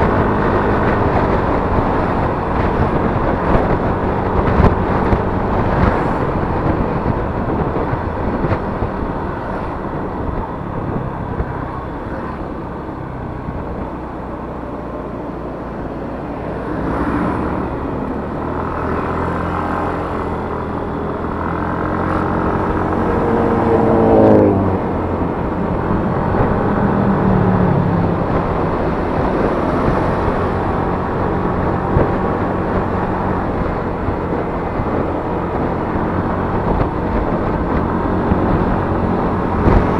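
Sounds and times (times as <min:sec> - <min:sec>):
scooter engine running: 0:00.0 - 0:39.9
wind and road noise: 0:00.0 - 0:39.9.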